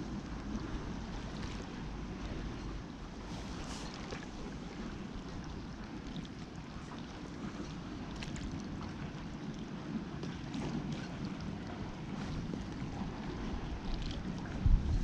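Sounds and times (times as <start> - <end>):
water moving against kayak: 0.0 - 15.0
wind buffeting microphone: 6.6 - 15.0.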